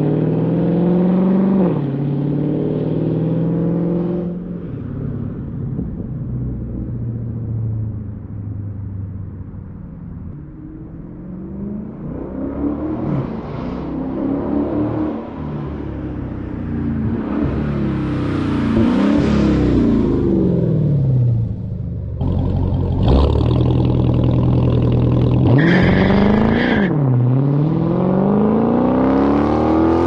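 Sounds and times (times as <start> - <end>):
car engine revving: 16.8 - 30.0.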